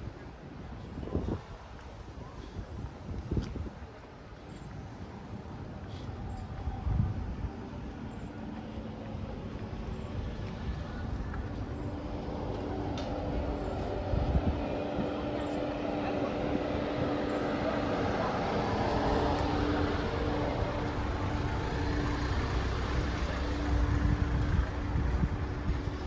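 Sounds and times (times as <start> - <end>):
outdoor noise: 0.0 - 26.0
engine running hum: 5.4 - 26.0.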